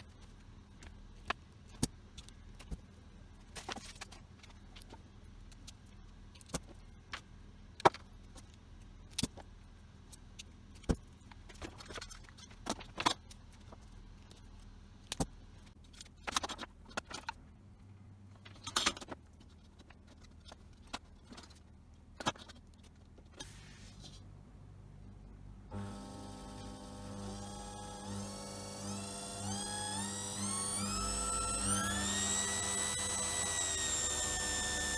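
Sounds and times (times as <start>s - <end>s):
faint low hum: 19.4s - 34.9s.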